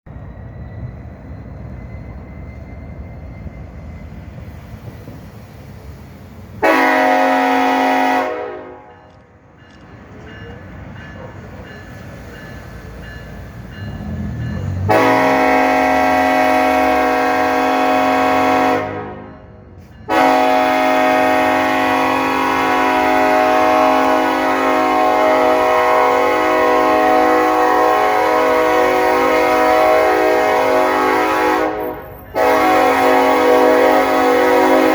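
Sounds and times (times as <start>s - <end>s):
locomotive rumbling: 0.0s - 34.9s
locomotive air horn blasts: 6.6s - 8.9s, 14.9s - 19.3s, 20.1s - 34.9s.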